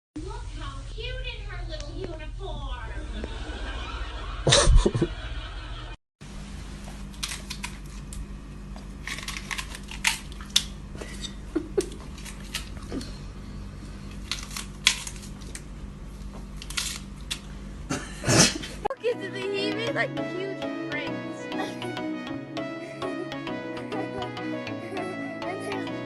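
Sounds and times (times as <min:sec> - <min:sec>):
low electrical hum: 0:00.2 - 0:18.9.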